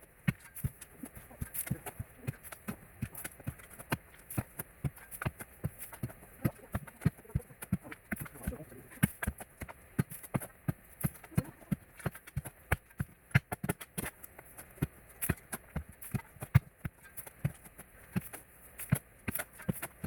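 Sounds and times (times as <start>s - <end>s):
sharp knocks and taps: 0.0s - 20.0s.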